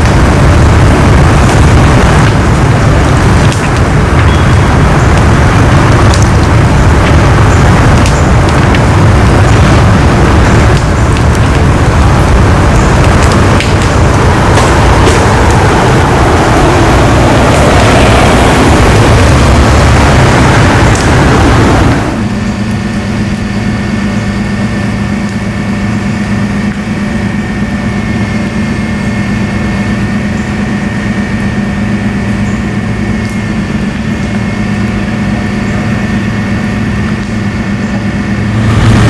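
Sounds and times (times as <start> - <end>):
loud rushing noise: 0.0 - 23.8, 38.2 - 39.0
large engine idling: 0.0 - 39.0.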